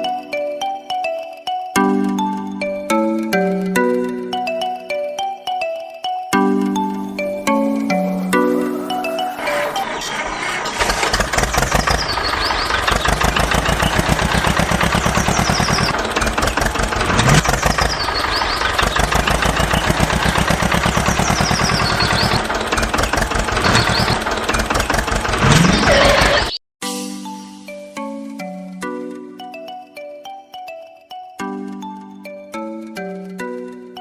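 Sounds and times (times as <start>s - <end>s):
small engine puttering: 9.4s - 26.6s.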